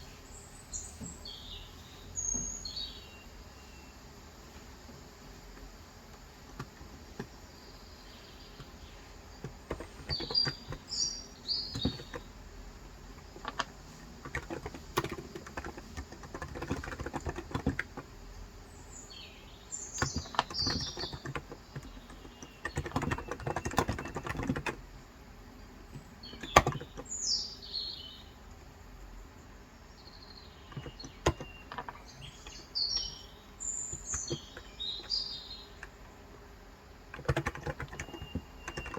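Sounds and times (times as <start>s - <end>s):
birds chirping: 0.0s - 38.9s
rapid keyboard typing: 8.6s - 12.4s, 13.1s - 18.2s, 20.0s - 24.9s, 25.9s - 27.1s, 30.7s - 32.6s, 33.9s - 36.0s, 37.1s - 38.9s.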